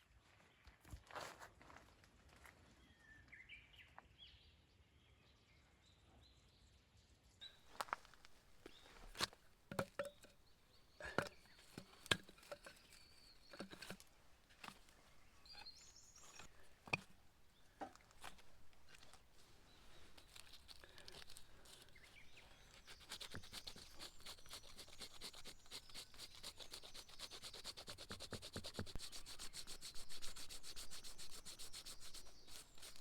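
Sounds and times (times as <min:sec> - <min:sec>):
sharp clicks and knocks: 0:09.0 - 0:10.3, 0:11.0 - 0:14.9.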